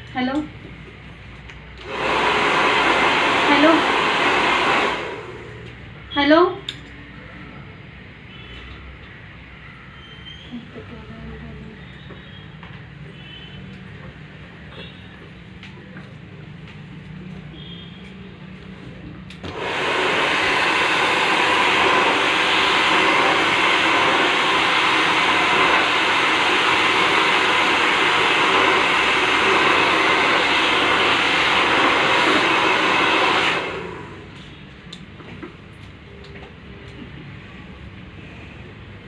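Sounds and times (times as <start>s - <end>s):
hair dryer blowing: 1.8s - 5.8s, 19.4s - 34.4s.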